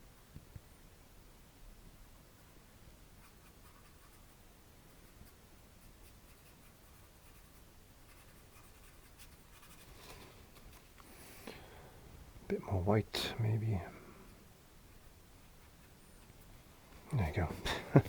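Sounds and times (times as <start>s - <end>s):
paintbrush scratchy brushing: 3.2s - 4.4s, 5.0s - 11.0s, 14.2s - 16.5s.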